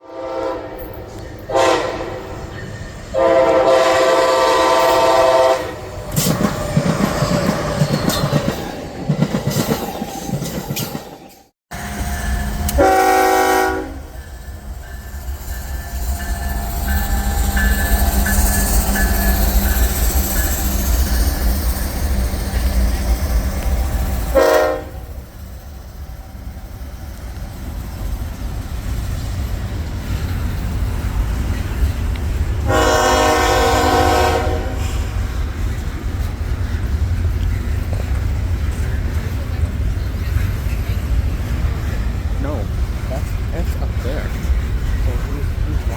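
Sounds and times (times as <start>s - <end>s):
locomotive air horn: 0.0s - 2.4s, 3.1s - 5.8s, 11.7s - 14.2s, 24.3s - 25.1s, 32.6s - 35.1s
train wheels clacking on rails: 6.0s - 13.0s, 14.1s - 45.9s.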